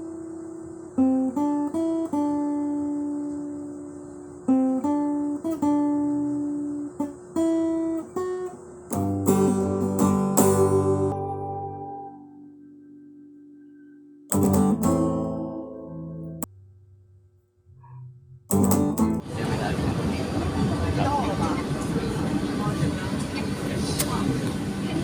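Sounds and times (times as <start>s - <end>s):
acoustic guitar playing: 0.0s - 19.4s.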